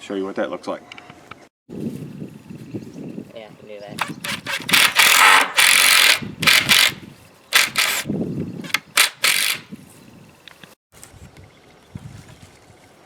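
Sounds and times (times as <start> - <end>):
power driver driving screws into wood: 4.0 - 7.0, 7.6 - 9.7.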